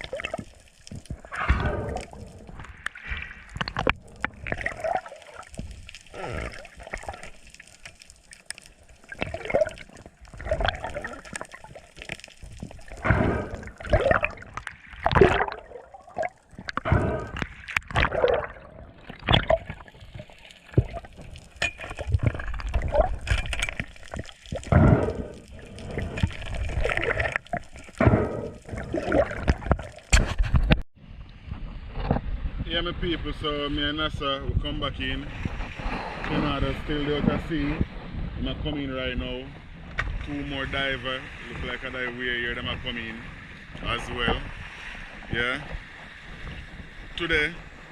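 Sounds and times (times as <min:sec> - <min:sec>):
sea water sloshing and gurgling: 0:00.0 - 0:32.5, 0:34.8 - 0:47.9.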